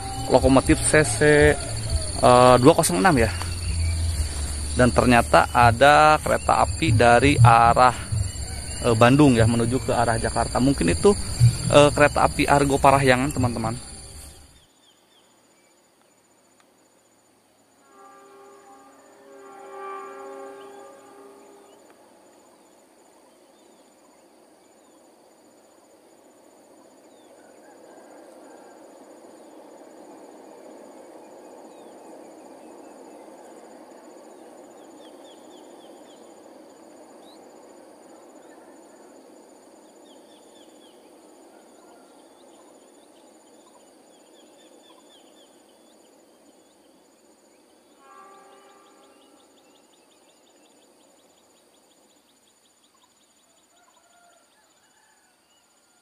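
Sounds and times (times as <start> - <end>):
high chirps: 0.0 - 14.5
distant passing train rumble: 0.0 - 14.6, 17.7 - 50.0
insect drone: 0.0 - 56.0.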